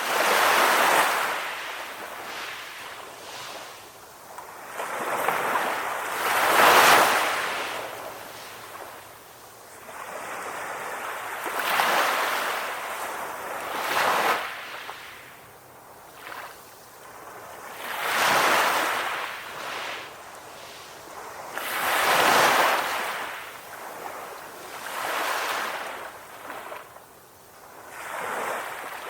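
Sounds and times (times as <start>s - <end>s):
ocean waves breaking: 17.7s - 26.8s.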